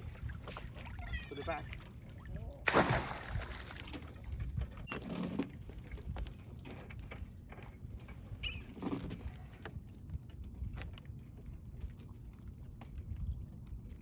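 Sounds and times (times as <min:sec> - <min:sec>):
crab pot splashing into water: 0:02.6 - 0:03.9.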